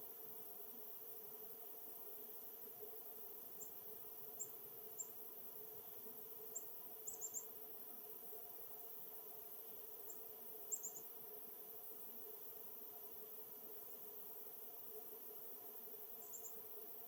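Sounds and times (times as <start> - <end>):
faint steady hum: 0.0 - 17.0
songbird chip calls: 6.5 - 7.5, 10.7 - 11.1, 16.2 - 16.6.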